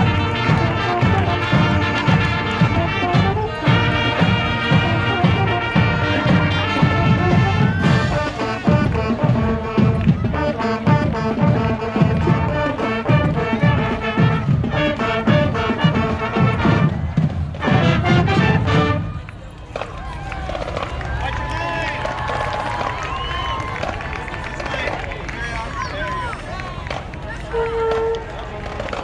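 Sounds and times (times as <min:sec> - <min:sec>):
steady drum beat: 0:00.0 - 0:19.1
brass instruments playing tune: 0:00.0 - 0:19.3.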